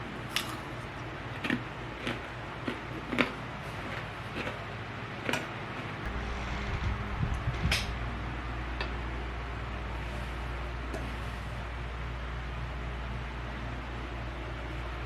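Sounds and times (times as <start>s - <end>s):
low steady hum: 5.9s - 15.0s.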